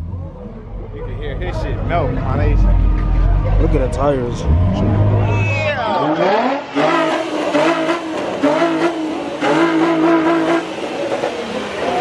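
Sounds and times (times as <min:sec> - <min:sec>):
car engine revving hard: 0:06.0 - 0:12.0.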